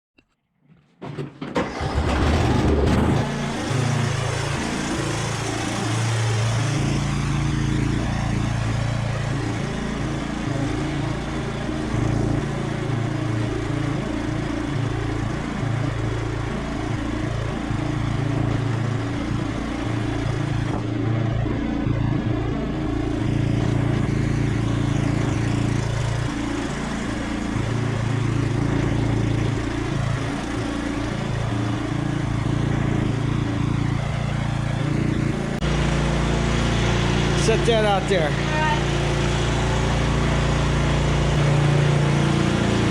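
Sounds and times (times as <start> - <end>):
lawn tractor engine running: 0.8 - 42.9.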